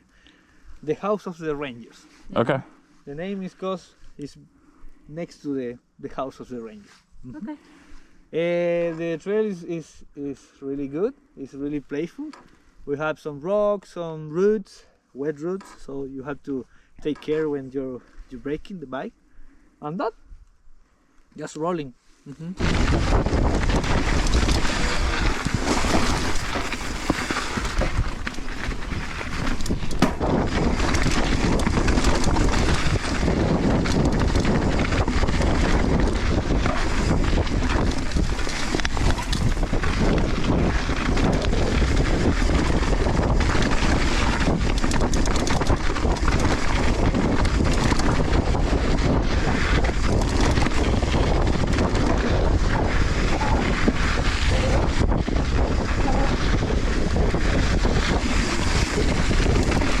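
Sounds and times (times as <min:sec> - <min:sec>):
tyre noise on dirt: 0:22.6 - 1:00.0
wind rushing over microphone: 0:22.6 - 1:00.0
bike clattering over rocks: 0:23.8 - 0:40.6.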